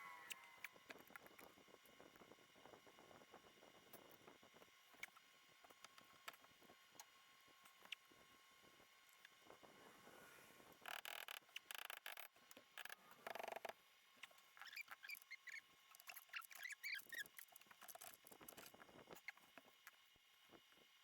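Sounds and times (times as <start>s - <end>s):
small high squeaks: 0.0s - 0.8s, 14.2s - 18.2s.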